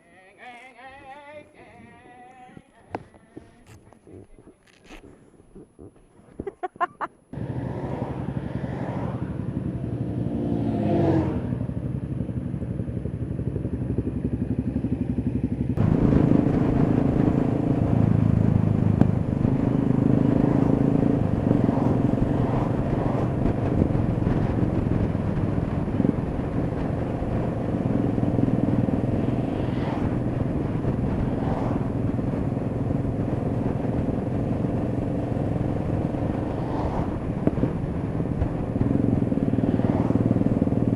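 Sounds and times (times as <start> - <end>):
motorcycle engine revving: 7.3 - 40.9
wind rush: 15.8 - 40.9.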